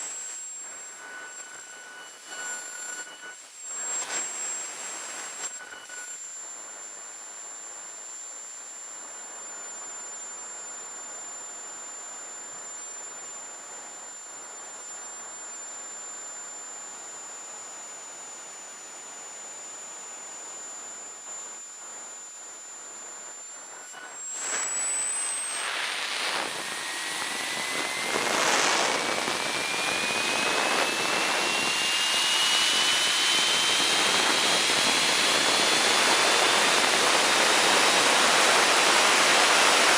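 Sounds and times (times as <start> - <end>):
jet turbine whine: 0.0 - 39.9
jet turbine roar: 24.1 - 39.9.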